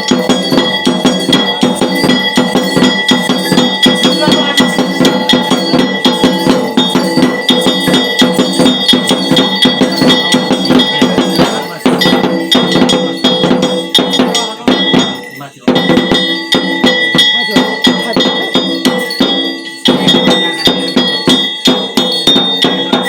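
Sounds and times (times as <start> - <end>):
fast metal percussion beating: 0.0 - 23.0
ringing bell tones: 0.0 - 23.0.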